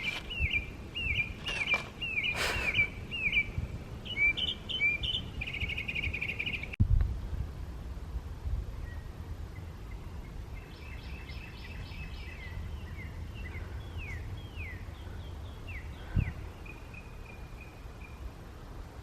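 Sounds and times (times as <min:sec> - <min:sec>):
songbird calling: 0:00.0 - 0:06.8, 0:08.8 - 0:18.3
wind rumble on microphone: 0:00.0 - 0:19.0.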